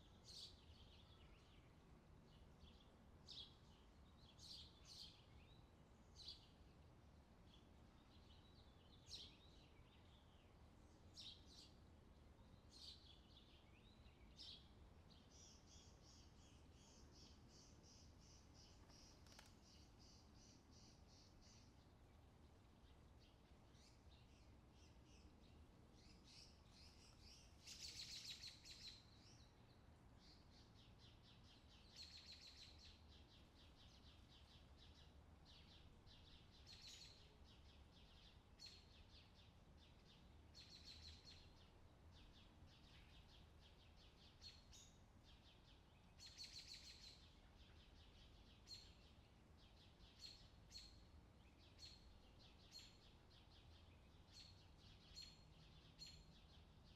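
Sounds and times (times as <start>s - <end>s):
low background hiss: 0.0s - 56.9s
birds chirping and trilling: 12.4s - 22.2s, 22.8s - 56.9s.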